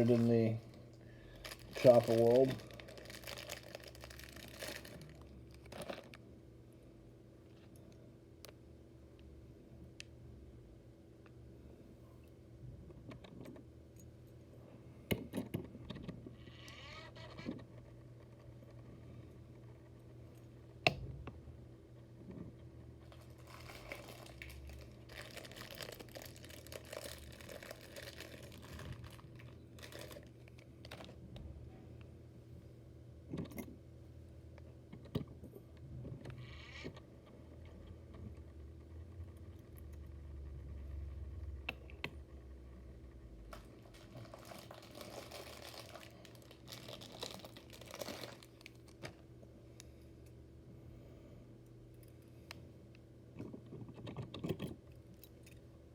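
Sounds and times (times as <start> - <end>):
handling small models and packaging: 0.0 - 6.2, 22.3 - 31.2, 43.5 - 49.4.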